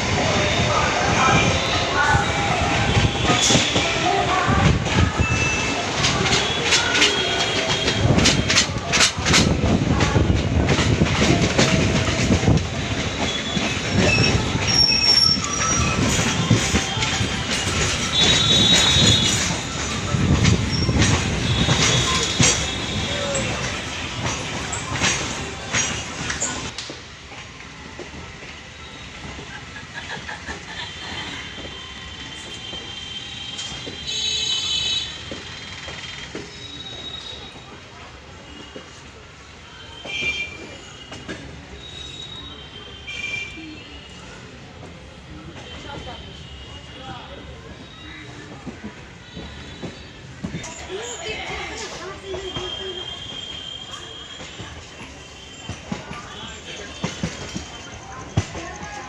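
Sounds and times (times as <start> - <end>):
train rumbling along the track: 0.0 - 59.0
wheel clacks over rail joints: 3.0 - 28.6
high wheel squeals: 13.1 - 26.7, 30.4 - 37.8, 39.6 - 44.4, 47.7 - 59.0.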